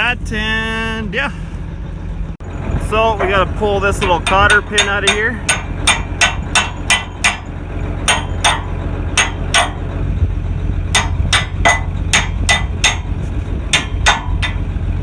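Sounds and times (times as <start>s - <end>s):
low engine hum: 0.0s - 15.0s
hammer knocking on steel pin: 4.0s - 7.5s, 8.1s - 9.8s, 11.0s - 13.1s, 13.8s - 14.6s.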